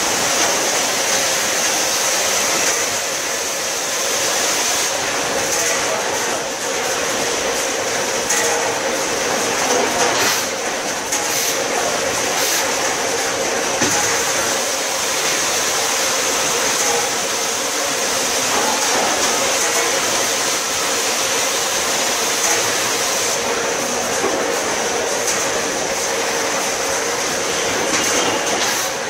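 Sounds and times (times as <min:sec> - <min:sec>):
packing machine running with whine: 0:00.0 - 0:29.0.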